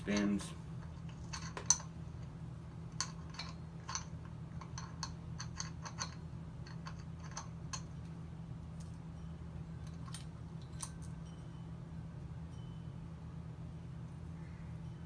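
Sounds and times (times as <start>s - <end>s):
steady low hum: 0.0s - 15.0s
small metal parts clicking: 0.1s - 2.3s, 2.9s - 8.1s, 9.8s - 11.3s.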